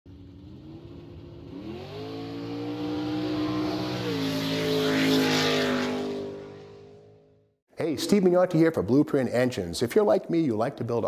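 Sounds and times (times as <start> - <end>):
car engine revving: 0.1 - 7.5.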